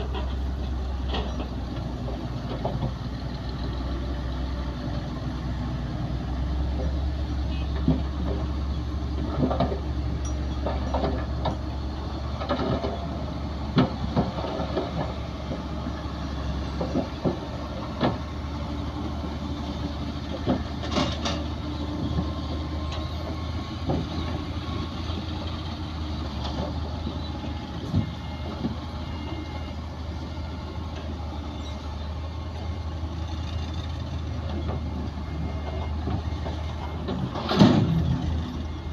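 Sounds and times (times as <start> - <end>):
diesel machinery engine hum: 0.0 - 38.9
knocks and clanks: 9.2 - 11.7, 20.2 - 24.4, 35.7 - 38.2.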